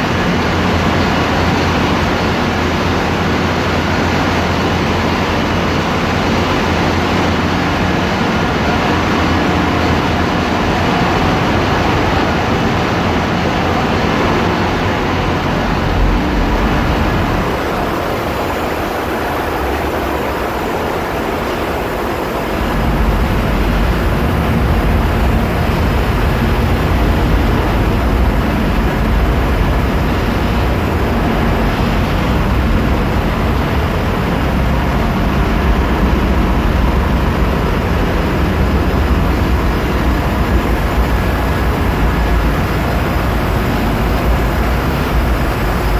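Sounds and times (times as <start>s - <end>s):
engine room machinery noise: 0.0s - 45.9s
deep low rumble: 22.2s - 45.9s.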